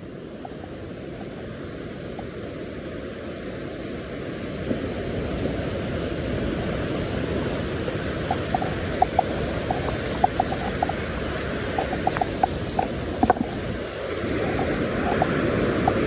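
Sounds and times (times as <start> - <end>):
surf at shoreline: 0.0 - 16.0
wind rumbling on microphone: 0.0 - 16.0
light irregular clicks: 8.2 - 13.7.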